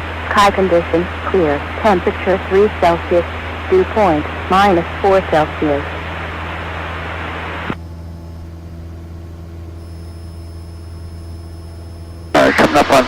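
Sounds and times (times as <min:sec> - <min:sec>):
light aircraft engine drone: 0:00.0 - 0:13.0
radio hiss: 0:00.1 - 0:07.8, 0:12.3 - 0:13.0.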